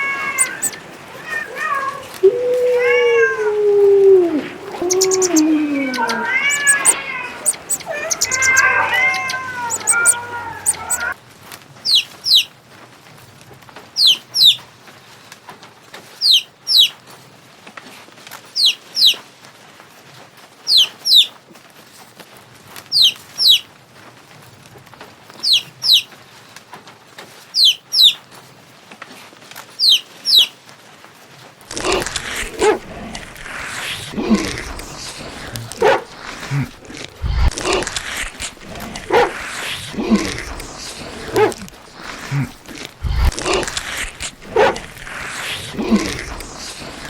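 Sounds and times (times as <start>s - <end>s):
bird chirping: 0.2s - 1.0s, 4.4s - 11.2s
loud rough sound: 31.7s - 47.0s.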